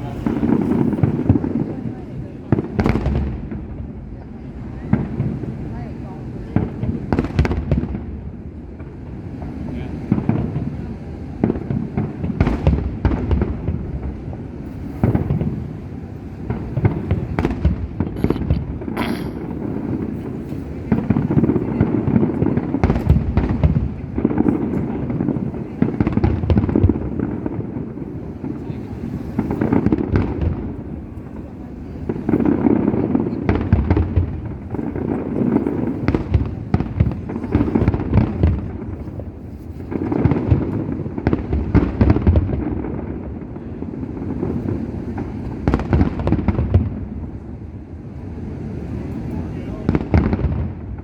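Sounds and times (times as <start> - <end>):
crowd voices: 0.0 - 7.4, 13.6 - 23.1, 23.8 - 41.2
fireworks cracking: 0.0 - 51.0.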